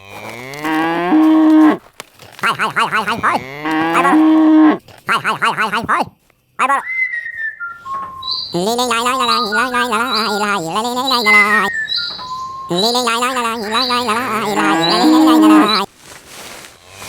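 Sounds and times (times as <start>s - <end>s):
cow mooing: 0.0s - 1.8s, 2.4s - 5.9s, 8.4s - 15.9s
high whistle: 6.8s - 8.6s.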